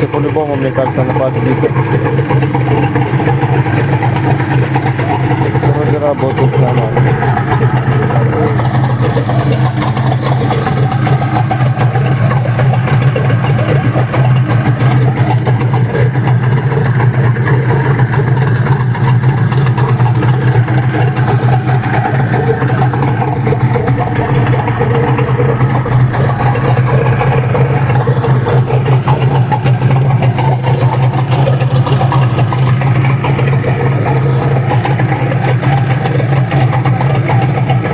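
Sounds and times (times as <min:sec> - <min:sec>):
outboard motor running: 0:00.0 - 0:37.9.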